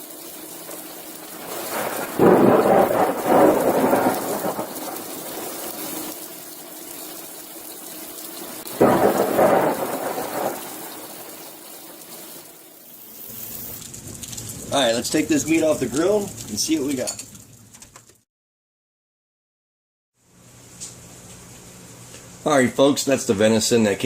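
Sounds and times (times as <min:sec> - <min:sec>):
steady rain: 0:00.0 - 0:18.0
thunder claps rumbling: 0:01.3 - 0:06.1, 0:08.7 - 0:11.8.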